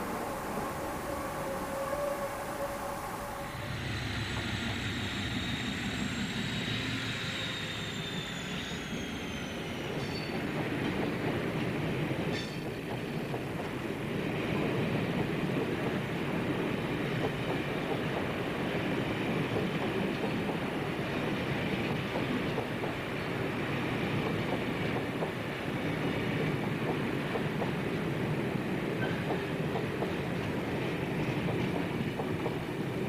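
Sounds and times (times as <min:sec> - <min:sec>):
high wheel squeal: 0:00.0 - 0:10.5
diesel locomotive rumbling: 0:00.0 - 0:33.0.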